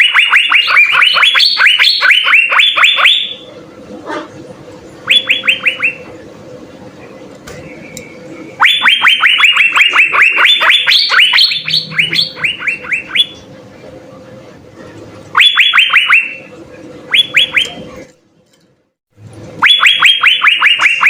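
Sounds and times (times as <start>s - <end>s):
bird singing downward-sliding notes: 7.6s - 13.5s.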